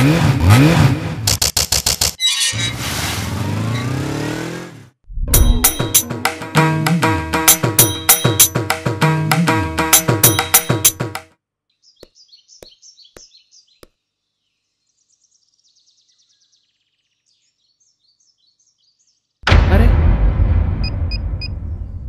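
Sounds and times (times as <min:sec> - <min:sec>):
loud deep rumbling: 0:05.1 - 0:06.3, 0:19.5 - 0:22.0
sharp knocks: 0:05.2 - 0:11.3
small birds chirping: 0:11.7 - 0:19.4.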